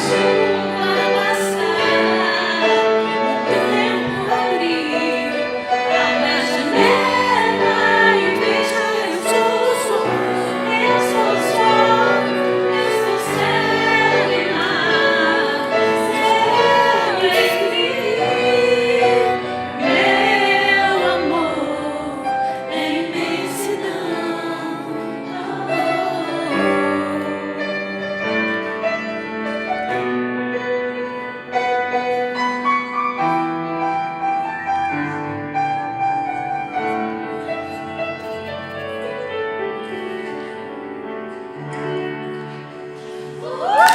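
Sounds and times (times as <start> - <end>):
piano accompaniment: 0.0 - 43.9
woman singing a ballad: 17.1 - 18.8.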